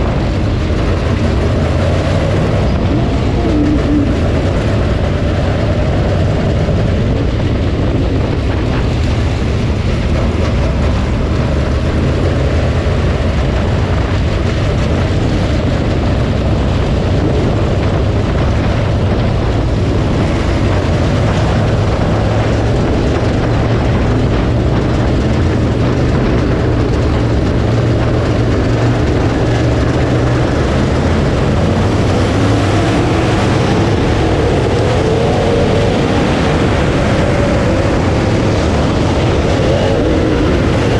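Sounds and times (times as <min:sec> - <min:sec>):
race car engine: 0:00.0 - 0:40.9.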